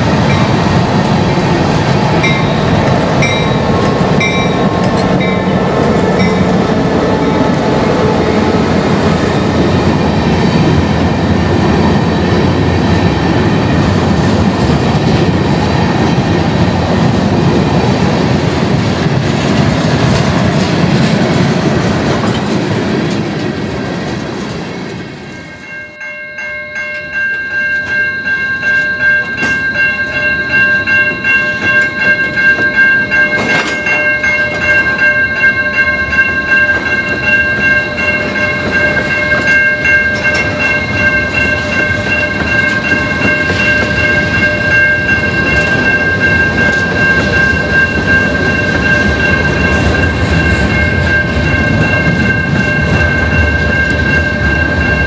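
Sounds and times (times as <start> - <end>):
diesel locomotives working: 0.0 - 55.0
train wheels clacking over rail joints: 0.2 - 6.6, 14.2 - 25.0, 31.0 - 35.1, 36.3 - 55.0.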